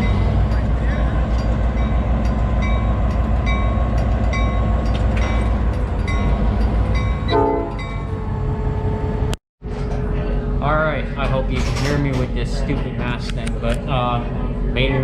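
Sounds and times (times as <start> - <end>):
locomotive bell ringing: 0.0 - 8.3
diesel locomotive rumbling: 0.0 - 15.0.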